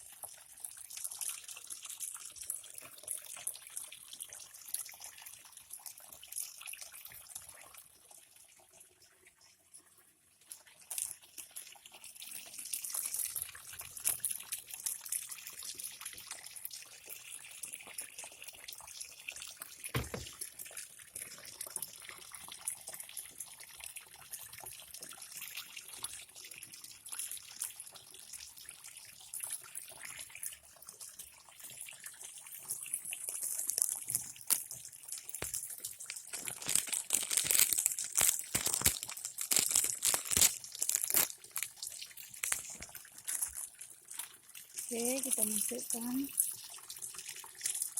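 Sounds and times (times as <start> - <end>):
tap water splashing into tub: 19.9 - 20.7.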